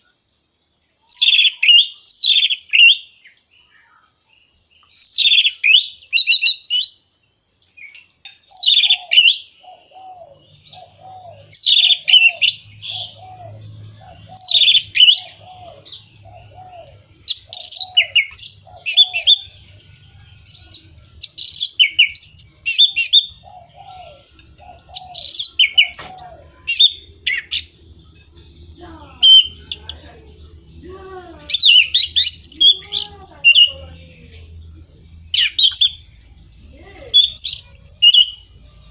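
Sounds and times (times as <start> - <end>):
low bird call: 8.5 - 19.7.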